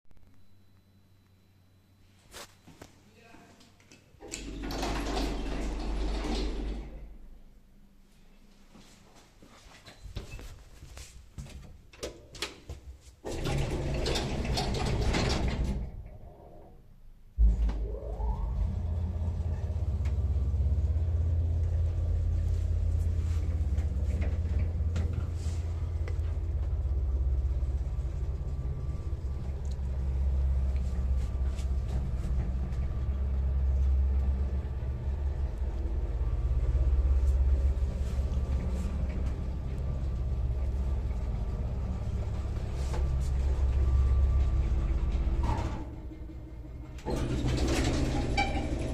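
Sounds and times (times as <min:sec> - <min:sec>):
elevator motor whine and hum: 0:00.1 - 0:08.9, 0:13.2 - 0:48.9
elevator doors sliding shut: 0:04.2 - 0:07.3, 0:13.2 - 0:16.7, 0:17.4 - 0:48.9.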